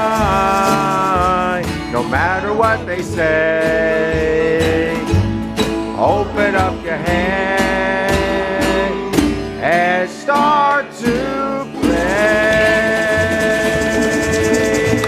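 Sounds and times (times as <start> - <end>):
country song with guitar: 0.0 - 15.0
person singing: 0.0 - 15.0.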